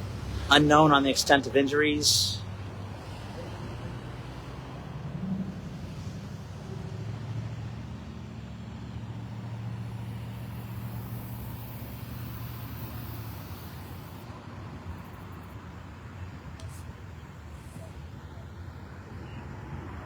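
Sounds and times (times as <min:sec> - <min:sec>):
vehicle engine running: 0:00.0 - 0:14.2
traffic and road noise: 0:00.0 - 0:20.0.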